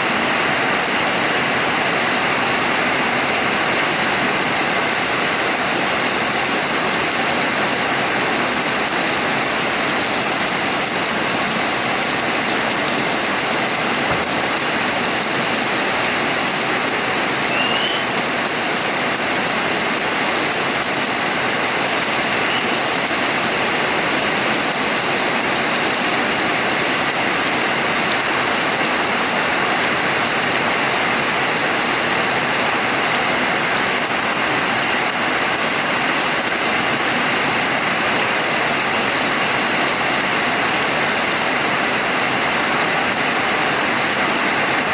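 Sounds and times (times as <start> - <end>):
heavy rain: 0.0 - 44.9.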